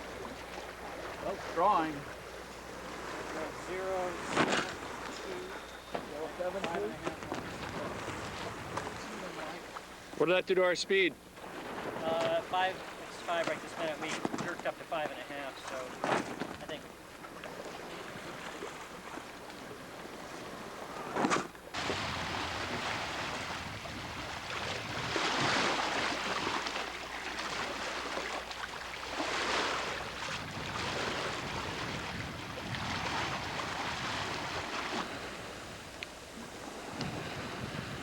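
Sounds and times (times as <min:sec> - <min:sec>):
sea water rushing along hull: 0:00.0 - 0:38.0
wind: 0:00.0 - 0:38.0.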